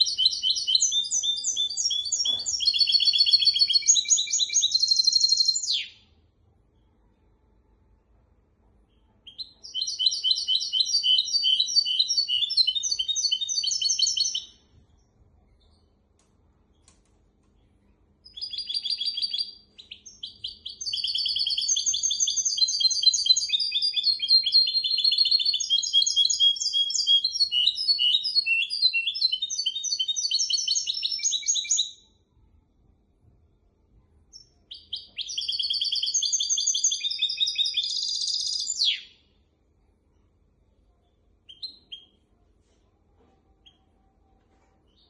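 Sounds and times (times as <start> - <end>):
finch singing trills: 0.0 - 6.0.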